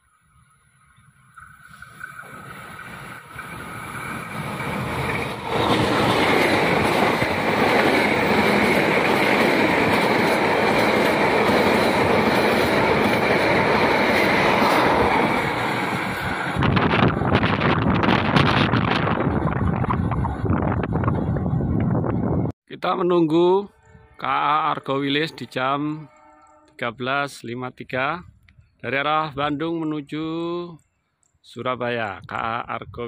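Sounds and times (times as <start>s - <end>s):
passenger train passing: 0.1s - 22.5s, 23.2s - 27.1s
wind buffeting microphone: 2.0s - 22.5s.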